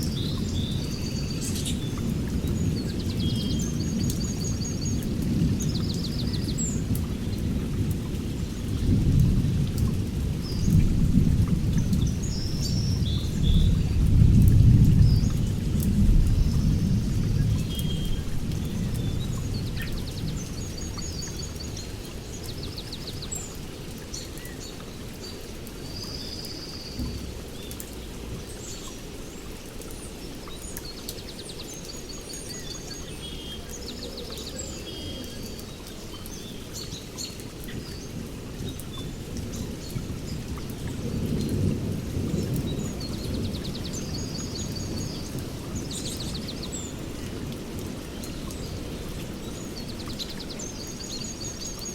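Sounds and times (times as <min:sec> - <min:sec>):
rain falling: 0:00.0 - 0:51.9
low rolling thunder: 0:04.7 - 0:21.7, 0:39.4 - 0:46.0.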